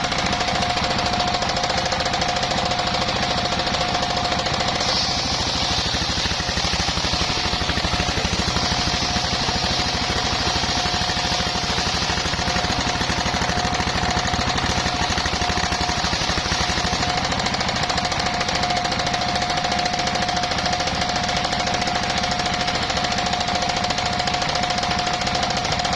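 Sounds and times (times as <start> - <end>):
sawmill engine pulsing: 0.0 - 25.9
saw blade humming and hissing: 2.5 - 17.4.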